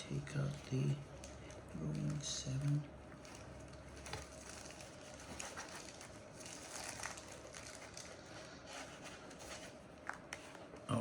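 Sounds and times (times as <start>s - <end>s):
packaging rustling and scraping: 1.9s - 10.7s.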